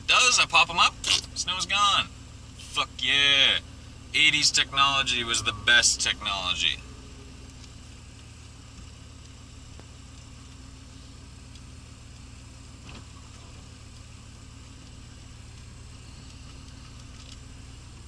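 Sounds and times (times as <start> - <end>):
car engine idling from cabin: 0.0 - 18.0
faint tick: 7.4 - 10.6, 11.5 - 12.3, 13.9 - 14.1, 14.8 - 17.4.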